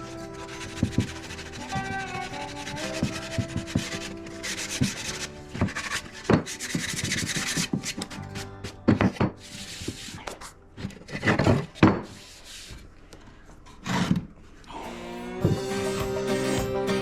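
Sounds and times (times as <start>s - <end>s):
hand sanding wood: 0.0s - 8.5s, 9.2s - 10.5s, 11.2s - 12.9s
background music: 0.0s - 11.9s, 14.8s - 17.0s.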